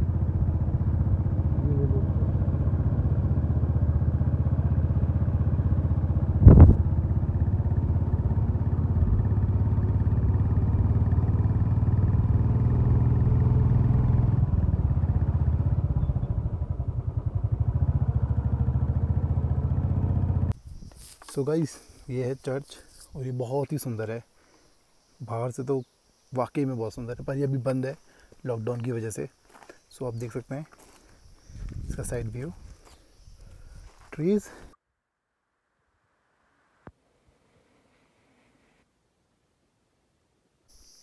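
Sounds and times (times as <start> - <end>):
motorcycle engine pulsing exhaust: 0.0 - 20.6
sharp thump: 6.4 - 6.8.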